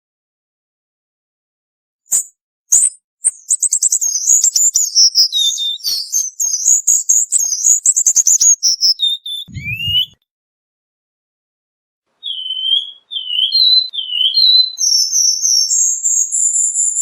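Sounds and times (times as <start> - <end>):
bird twittering chirps: 2.1 - 10.2, 12.2 - 17.0
low thud: 9.5 - 10.2.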